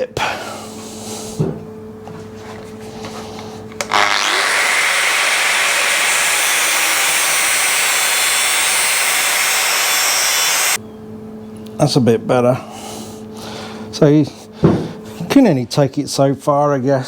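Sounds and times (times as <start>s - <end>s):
grinder grinding metal: 3.8s - 10.8s.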